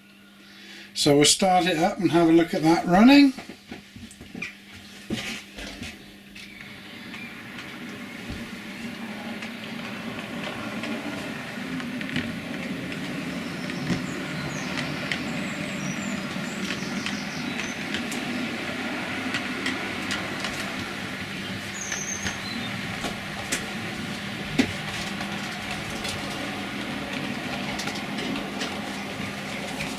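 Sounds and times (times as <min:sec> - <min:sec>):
wheels clicking over rail joints: 0:05.1 - 0:29.9
model train motor hum: 0:06.6 - 0:29.9.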